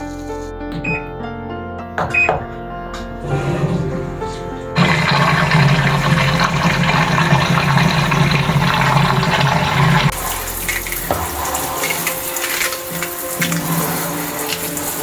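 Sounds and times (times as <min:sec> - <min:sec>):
faint background music: 0:00.0 - 0:15.0
running water: 0:04.8 - 0:15.0
washing machine filling with water: 0:04.8 - 0:15.0.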